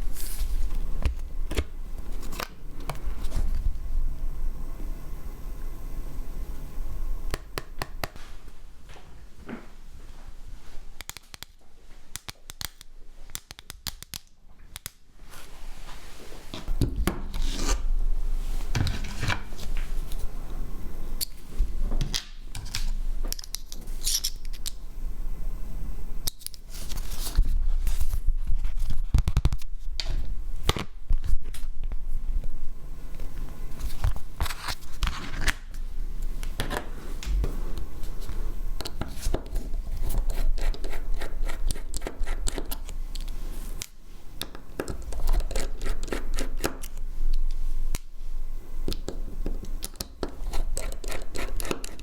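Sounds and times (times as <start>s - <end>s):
small hand tools scraping and clicking: 22.6s - 24.8s, 49.6s - 52.0s.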